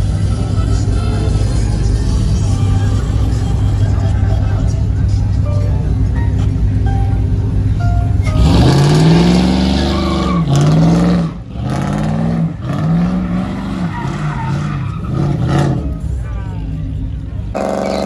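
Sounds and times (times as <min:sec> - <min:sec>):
tyres squealing: 0:08.2 - 0:10.8, 0:13.1 - 0:15.9, 0:17.6 - 0:18.0
car engine revving hard: 0:08.4 - 0:16.0, 0:17.6 - 0:18.0.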